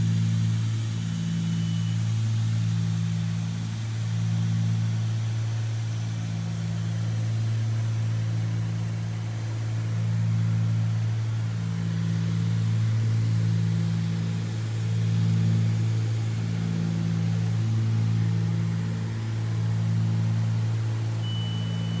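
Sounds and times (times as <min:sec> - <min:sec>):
propeller plane engines droning: 0:06.3 - 0:22.0.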